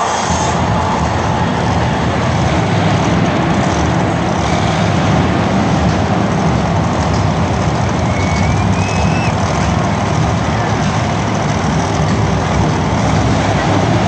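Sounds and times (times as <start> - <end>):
monster truck engine running: 0.0 - 14.0.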